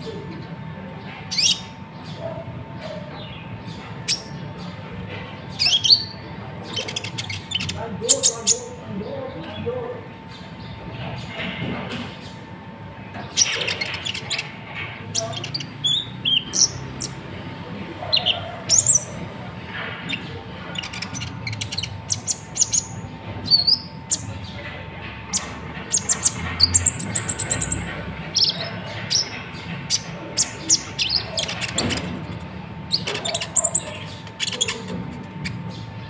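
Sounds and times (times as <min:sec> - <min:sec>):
small bird chirping and whistling: 0:18.2 - 0:19.2.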